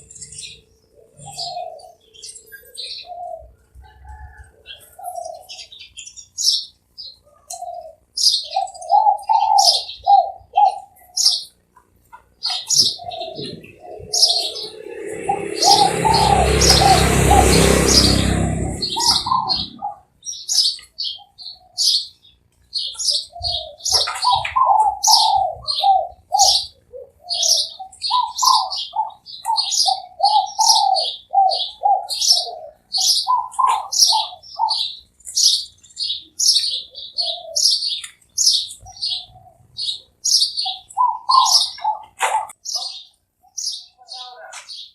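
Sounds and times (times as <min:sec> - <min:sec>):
doves cooing: 0:00.0 - 0:05.9, 0:07.2 - 0:20.1, 0:22.8 - 0:35.1, 0:36.1 - 0:43.1
small birds chirping: 0:00.0 - 0:44.9
rush of noise: 0:13.6 - 0:19.9.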